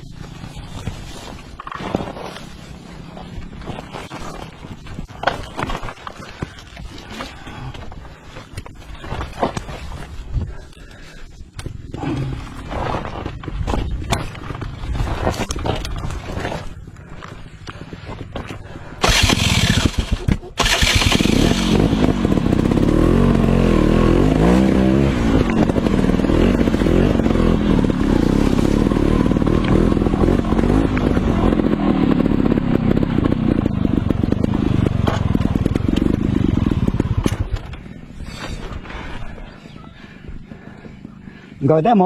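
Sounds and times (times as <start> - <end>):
motorcycle engine revving: 19.0 - 38.3.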